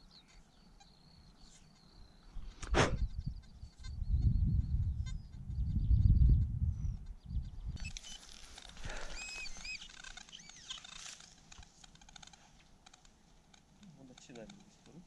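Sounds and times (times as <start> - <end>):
bird chirping: 0.0 - 15.0
faint clicks and rustling: 7.8 - 15.0.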